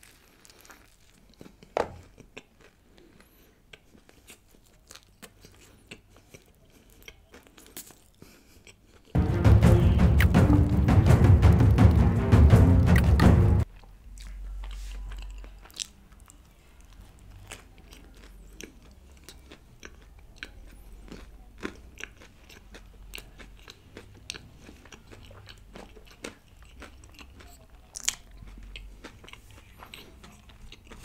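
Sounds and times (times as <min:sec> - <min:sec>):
chewing crispy food: 0:00.0 - 0:09.2, 0:13.6 - 0:31.0
background music: 0:09.2 - 0:13.7.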